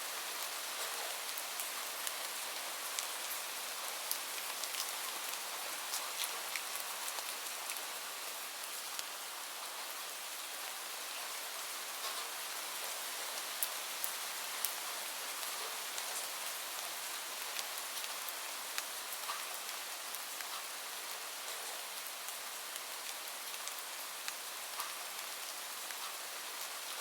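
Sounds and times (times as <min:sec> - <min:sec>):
raindrops striking a surface: 0:00.1 - 0:27.0.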